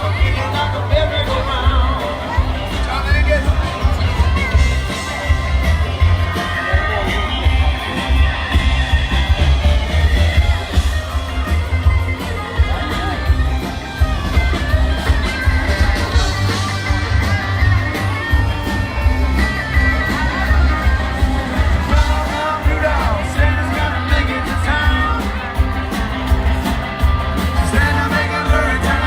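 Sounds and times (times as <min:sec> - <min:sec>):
electric guitar: 0:00.0 - 0:29.0
heavy bass line: 0:00.0 - 0:29.0
steady drum beat: 0:00.0 - 0:29.0
person singing: 0:19.6 - 0:25.7, 0:27.4 - 0:29.0.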